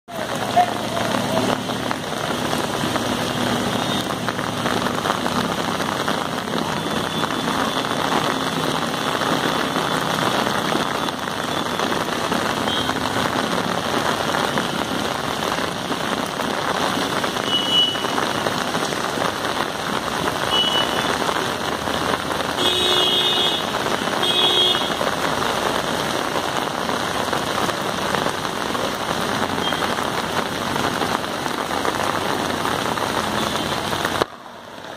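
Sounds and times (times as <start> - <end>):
heavy rain on a flooded street: 0.1 - 34.9
car horn blasts: 22.6 - 23.6.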